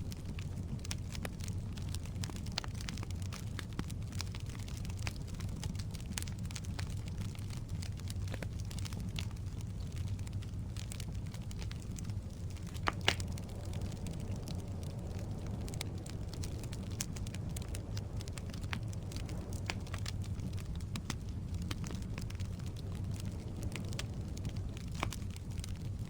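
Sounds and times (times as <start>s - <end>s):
fire rumbling: 0.0s - 26.0s
firewood crackling and popping: 0.0s - 26.0s.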